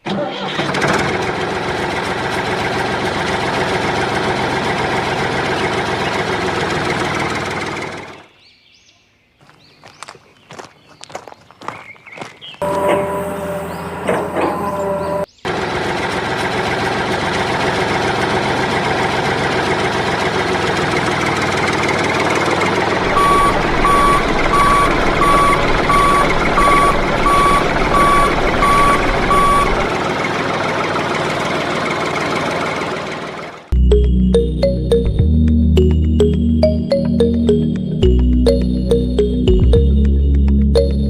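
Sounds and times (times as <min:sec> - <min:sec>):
heavy machinery engine running: 0:00.0 - 0:08.3, 0:12.6 - 0:35.1
reversing alarm beeping: 0:12.6 - 0:15.3, 0:23.0 - 0:29.9.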